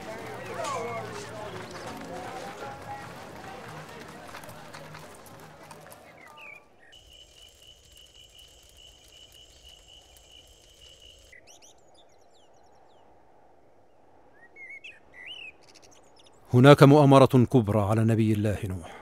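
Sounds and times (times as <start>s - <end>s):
bird chirps: 6.0s - 13.1s, 14.3s - 16.5s.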